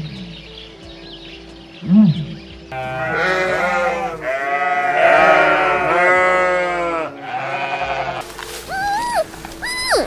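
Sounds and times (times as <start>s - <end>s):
sheep bleating: 2.8s - 8.2s.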